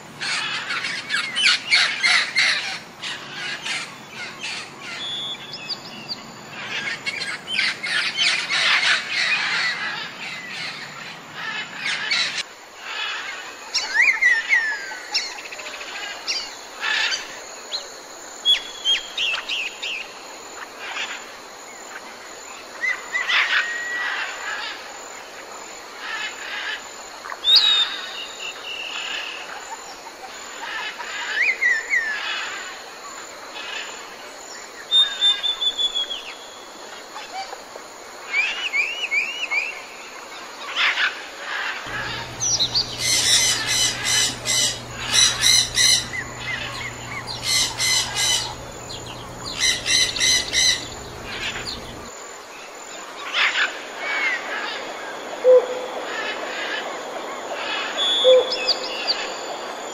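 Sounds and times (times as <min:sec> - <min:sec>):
wild birds calling and singing: 0:00.1 - 0:20.1, 0:38.3 - 0:59.9
low steady hum: 0:41.9 - 0:52.1
rapid buzzing trills: 0:41.9 - 0:52.2.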